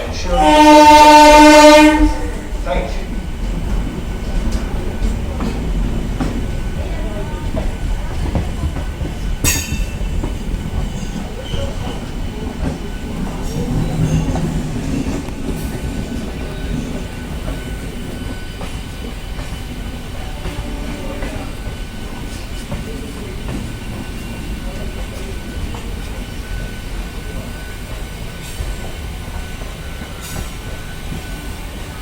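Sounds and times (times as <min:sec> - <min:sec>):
train rumbling on rails: 0:00.0 - 0:32.0
sharp metal clank: 0:09.5 - 0:09.9.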